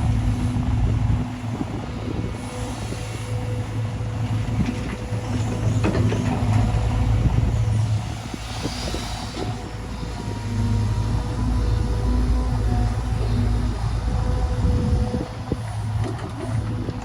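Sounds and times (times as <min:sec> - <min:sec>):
diesel machinery engine hum: 0:00.0 - 0:17.0.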